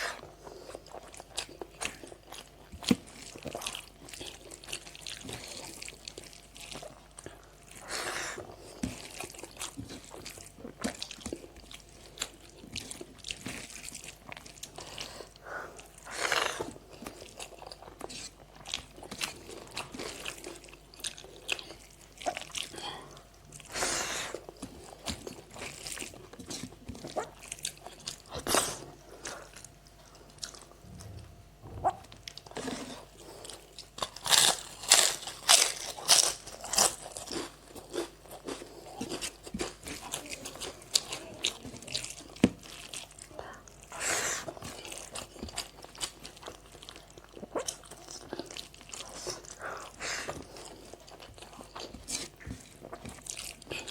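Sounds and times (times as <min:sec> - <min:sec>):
person chewing crunchy food: 0:00.0 - 0:53.9.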